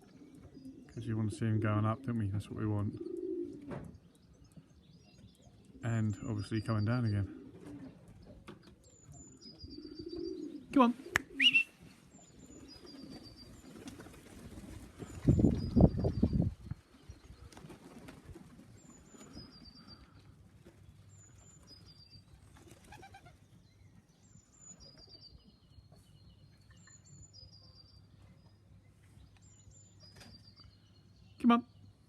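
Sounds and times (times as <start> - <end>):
flurry of wingbeats: 12.6 - 19.5, 22.4 - 23.3.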